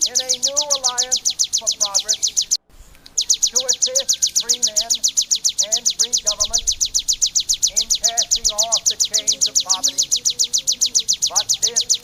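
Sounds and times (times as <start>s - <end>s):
songbird singing high falling notes: 0.0s - 12.0s.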